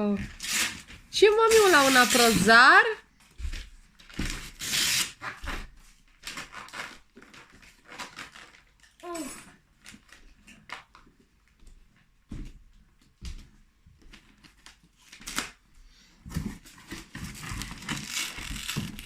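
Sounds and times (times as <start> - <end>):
wrapping paper rustling: 0.3 - 2.6, 4.0 - 11.0, 16.7 - 19.0.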